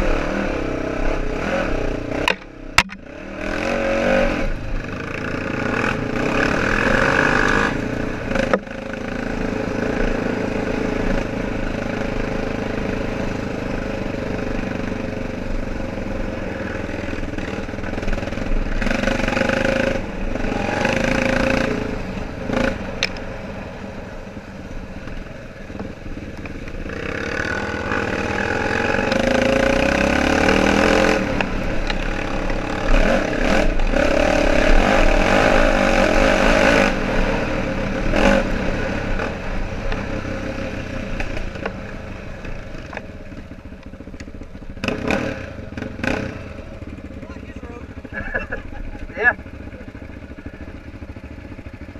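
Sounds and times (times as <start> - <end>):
atv engine revving: 0.0 - 51.9
sharp knocks: 2.2 - 3.0.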